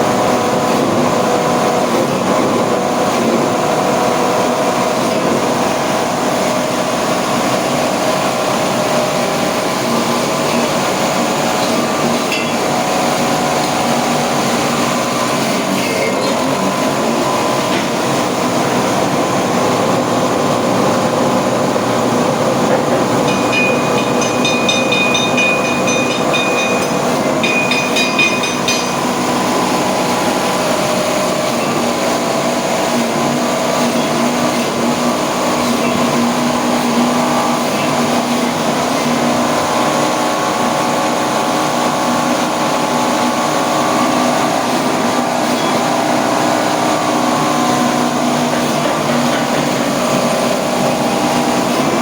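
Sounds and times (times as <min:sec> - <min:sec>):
electric machine humming: 0:00.0 - 0:52.0.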